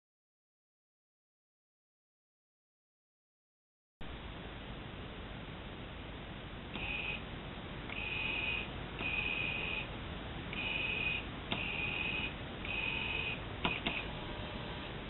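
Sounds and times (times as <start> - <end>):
high-pitched tone bursts: 10.6 - 13.4.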